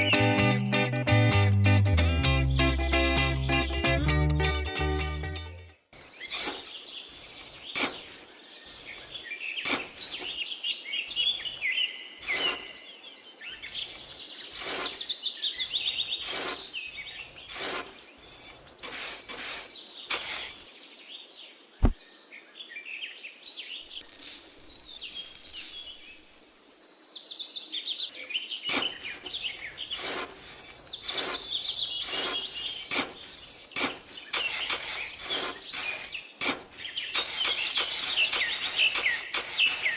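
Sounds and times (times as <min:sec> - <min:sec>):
birds chirping and singing: 0:06.0 - 0:39.9
short clicks: 0:37.1 - 0:39.9.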